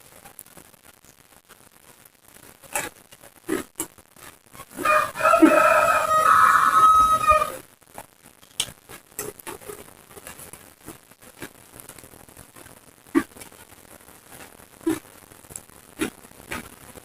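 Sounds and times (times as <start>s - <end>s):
rooster crowing: 4.8s - 7.6s.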